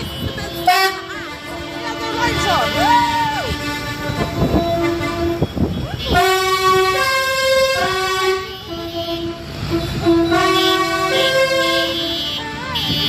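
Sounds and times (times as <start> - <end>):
musical vehicle horn: 0.0 - 13.0.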